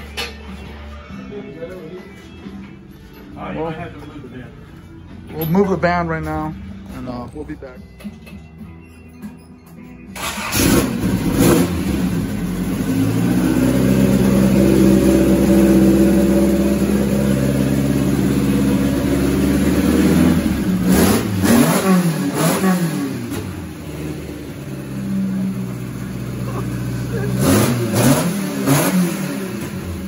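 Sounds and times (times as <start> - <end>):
car engine running and revving: 10.2 - 30.0.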